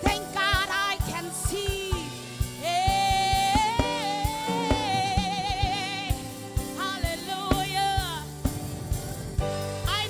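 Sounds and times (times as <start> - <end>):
person singing with vibrato: 0.0 - 8.5
drum beat: 0.0 - 10.0
band playing low notes: 7.5 - 10.0.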